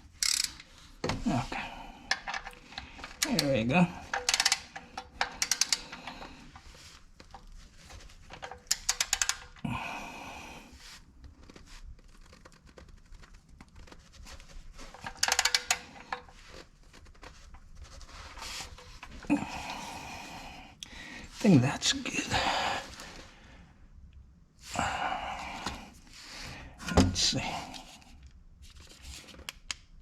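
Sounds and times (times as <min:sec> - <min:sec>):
torque wrench ratchet clicking: 0:00.2 - 0:00.6, 0:04.2 - 0:04.6.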